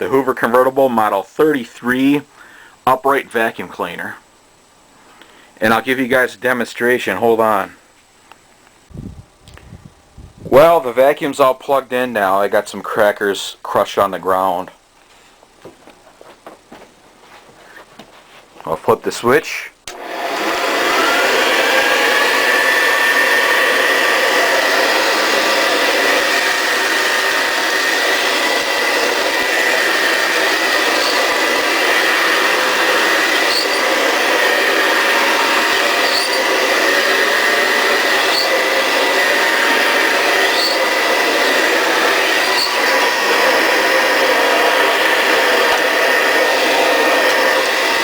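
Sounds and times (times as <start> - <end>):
vacuum cleaner motor whine: 19.9 - 48.0.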